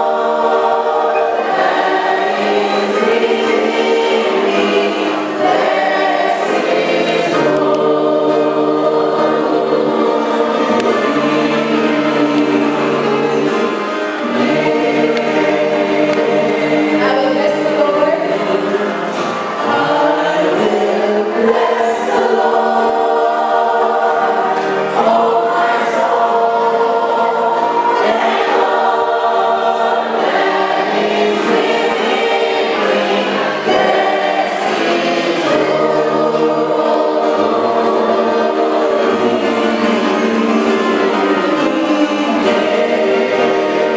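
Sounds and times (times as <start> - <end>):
choir singing: 0.0 - 43.9.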